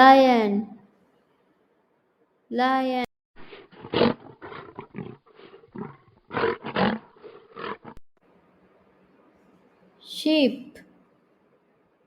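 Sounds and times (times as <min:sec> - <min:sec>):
lion roaring: 0:03.5 - 0:08.0.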